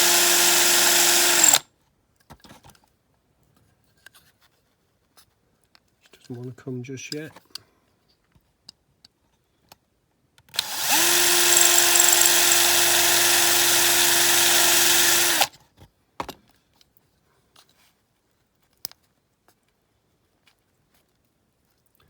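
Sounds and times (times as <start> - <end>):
power drill drilling metal: 0.0 - 1.6, 10.6 - 15.5.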